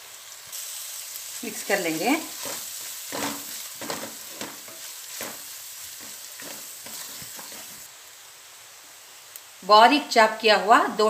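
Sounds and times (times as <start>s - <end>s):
onion and spices sizzling in oil: 0.0s - 11.0s
wooden spatula scraping a pot: 2.3s - 7.9s.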